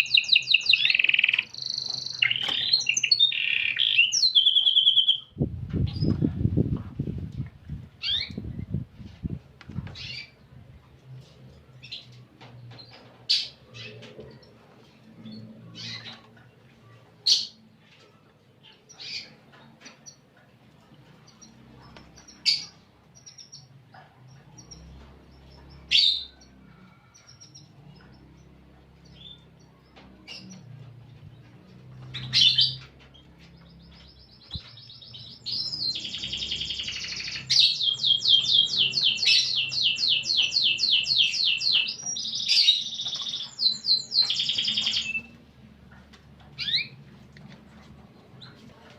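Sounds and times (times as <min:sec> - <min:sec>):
canary singing: 0:00.0 - 0:06.2, 0:21.2 - 0:45.4, 0:46.5 - 0:47.1.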